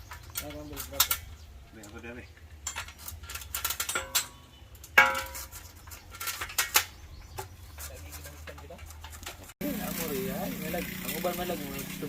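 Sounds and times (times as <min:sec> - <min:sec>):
hard objects clinking and knocking: 0:02.5 - 0:09.6
ringing metallic clang: 0:03.8 - 0:05.5.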